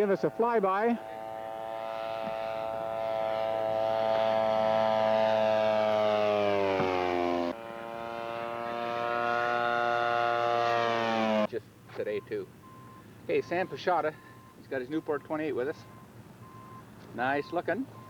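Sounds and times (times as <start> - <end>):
model airplane engine buzzing: 0.0 - 11.5.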